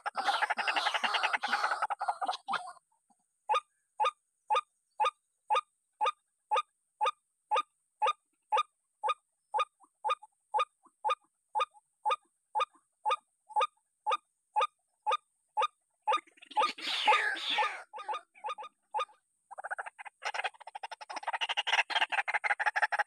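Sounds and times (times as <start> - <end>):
waterhen honking call: 16.6 - 18.3.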